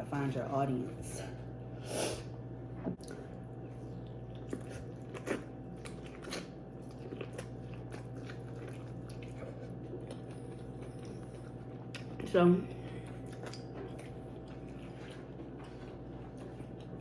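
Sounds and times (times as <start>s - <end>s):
steady low hum: 0.0s - 17.0s
person chewing food: 2.9s - 17.0s.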